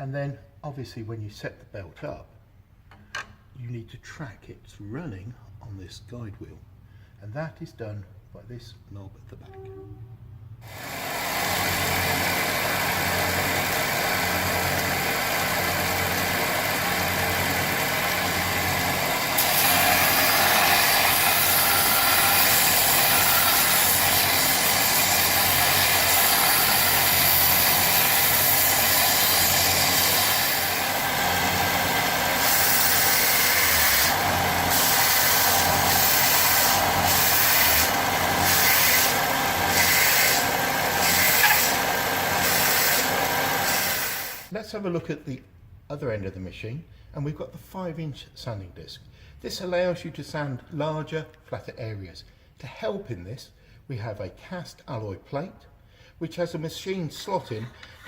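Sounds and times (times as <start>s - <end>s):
belt and disc sander running: 10.7s - 44.5s.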